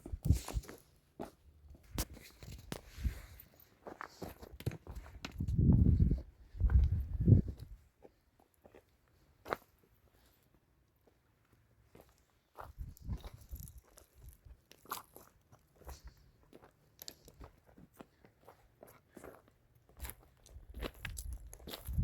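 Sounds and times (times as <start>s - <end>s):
sharp crunches and scrapes: 0.0s - 0.9s.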